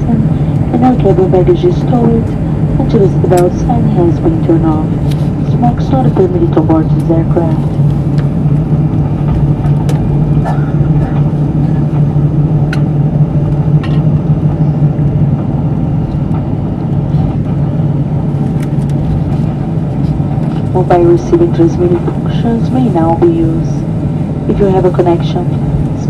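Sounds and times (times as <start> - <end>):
aircraft cabin hum: 0.0 - 26.0.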